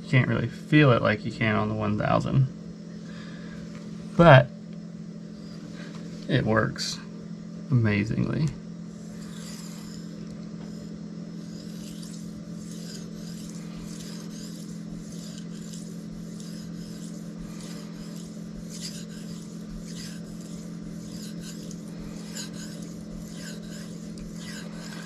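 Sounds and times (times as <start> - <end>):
steady low hum: 0.0 - 25.0
blade rasping on whetstone: 8.9 - 25.0.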